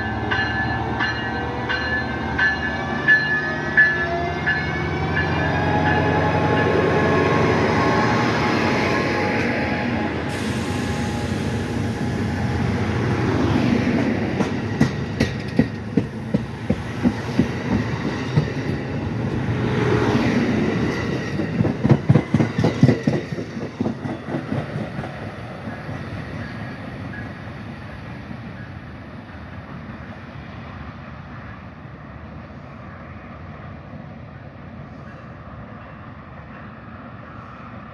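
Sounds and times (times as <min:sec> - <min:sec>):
train rumble: 0:00.0 - 0:37.9
train wheels clacking over rail joints: 0:13.9 - 0:18.9, 0:20.1 - 0:27.2.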